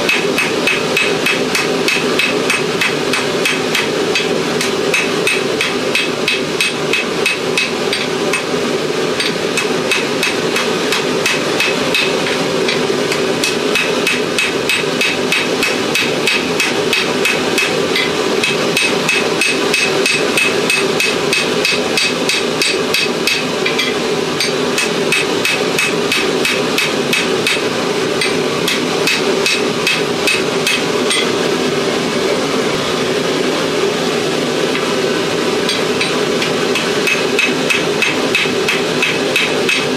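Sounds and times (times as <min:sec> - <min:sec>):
hammer striking steel on anvil: 0:00.0 - 0:08.5, 0:09.2 - 0:31.4, 0:35.6 - 0:39.9
steady background noise: 0:00.0 - 0:39.9.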